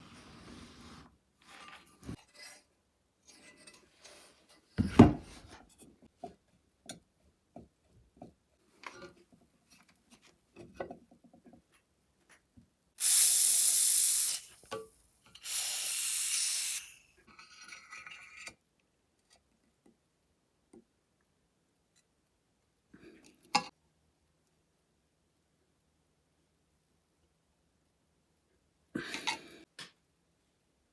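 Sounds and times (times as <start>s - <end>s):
hissing bursts: 13.0s - 14.7s, 15.4s - 17.0s.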